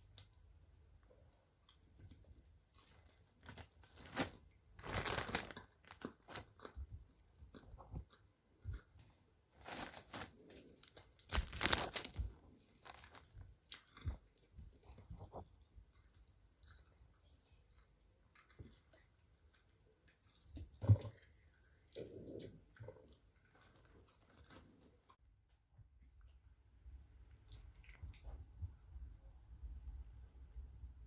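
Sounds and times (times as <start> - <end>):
person chewing crunchy food: 4.8 - 25.2.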